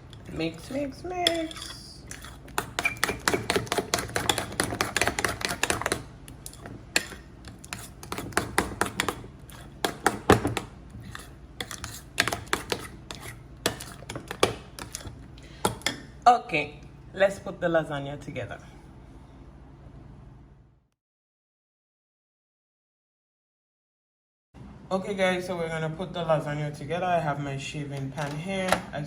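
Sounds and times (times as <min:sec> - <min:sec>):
utensil stirring in a bowl: 0:00.0 - 0:15.9.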